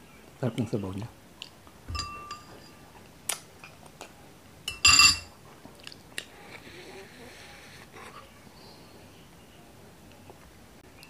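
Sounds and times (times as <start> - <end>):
spoon clinking ceramic bowl: 1.9 - 2.8, 4.7 - 5.3.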